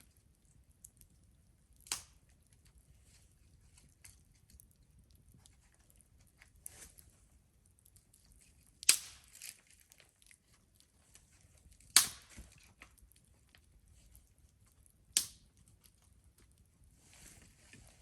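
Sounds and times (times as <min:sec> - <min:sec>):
wood fire crackling: 0:00.0 - 0:18.0
loud sharp pops: 0:08.8 - 0:09.4, 0:11.9 - 0:12.4.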